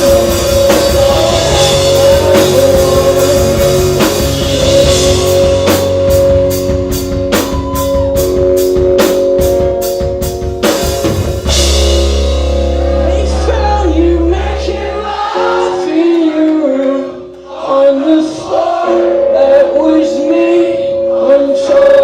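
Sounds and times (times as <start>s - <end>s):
person singing: 0.0s - 6.4s, 12.8s - 22.0s
rock band playing: 0.0s - 22.0s.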